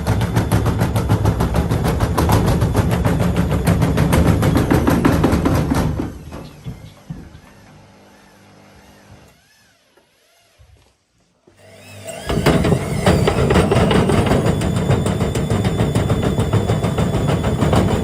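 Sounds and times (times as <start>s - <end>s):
washing machine drum knocking: 0.0s - 6.2s, 12.3s - 18.0s
washing machine spinning: 0.0s - 9.5s, 11.6s - 18.0s.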